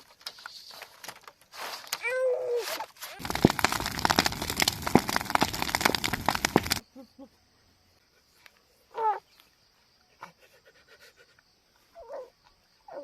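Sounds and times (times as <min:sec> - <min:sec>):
dense crackling and snapping: 0:03.2 - 0:06.8.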